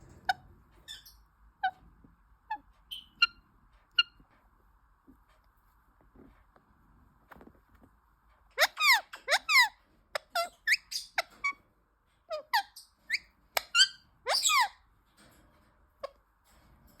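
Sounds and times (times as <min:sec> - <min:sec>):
parrot chirping: 0:00.1 - 0:01.8, 0:02.5 - 0:04.2, 0:08.6 - 0:11.6, 0:12.3 - 0:14.8.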